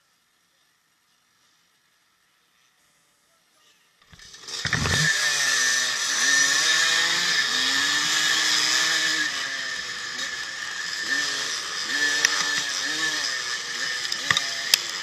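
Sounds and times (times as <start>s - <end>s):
dirt bike engines revving: 4.2s - 15.0s.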